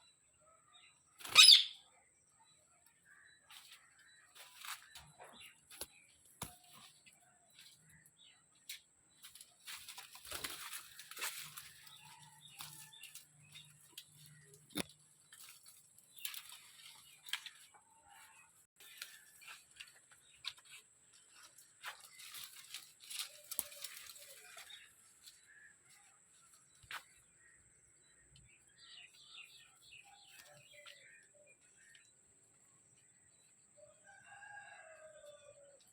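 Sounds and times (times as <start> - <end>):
faint bird calls and chirps: 0.0 - 15.4, 21.4 - 35.9.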